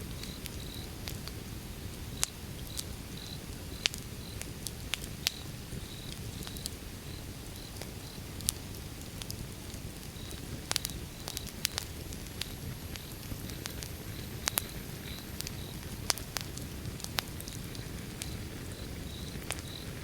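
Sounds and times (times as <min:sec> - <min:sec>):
fire flames rumbling: 0:00.0 - 0:20.0
logs crackling and popping: 0:00.1 - 0:20.0.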